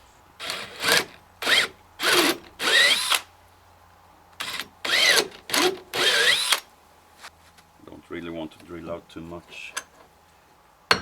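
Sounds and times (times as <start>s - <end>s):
power drill motor: 0.4s - 3.3s, 4.4s - 6.7s.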